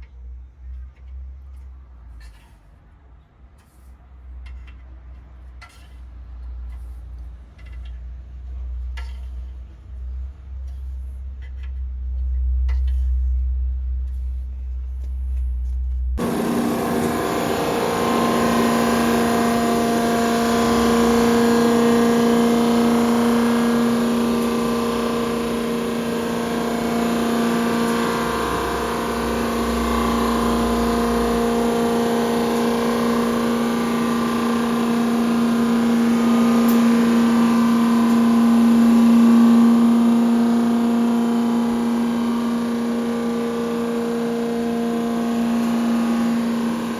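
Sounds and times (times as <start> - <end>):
low hum: 11.9 - 46.9
machine tool humming and whining: 16.2 - 46.9.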